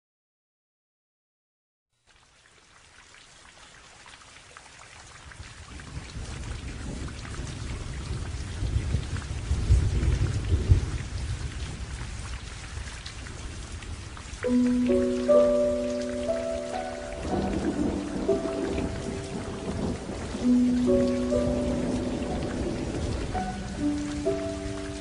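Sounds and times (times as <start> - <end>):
steady rain: 2.0 - 25.0
thunder rumbling: 6.3 - 12.0, 13.4 - 25.0.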